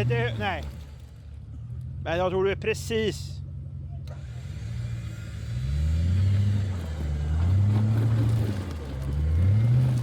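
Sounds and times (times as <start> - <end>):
engine revving: 4.1 - 10.0.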